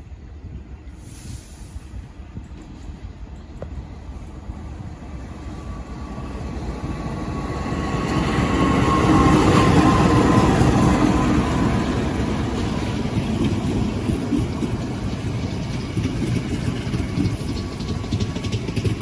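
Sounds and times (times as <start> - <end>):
steady tones in rail noise: 0.0 - 19.0
train passing on track: 0.0 - 19.0.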